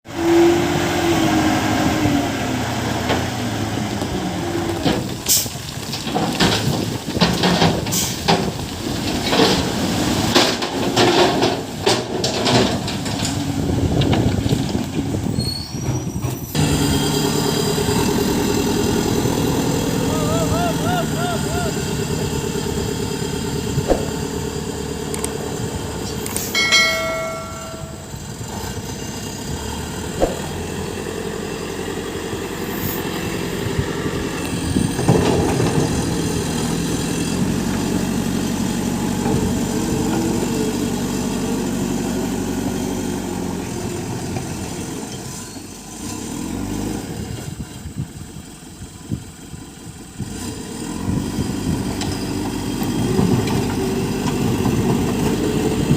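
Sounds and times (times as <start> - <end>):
diesel engine running: 16.0 - 55.9
short pitched tone: 26.5 - 28.3.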